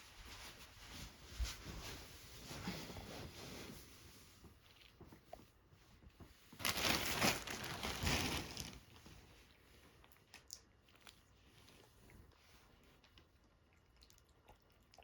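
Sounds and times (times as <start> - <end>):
packaging crinkling: 6.6 - 9.0.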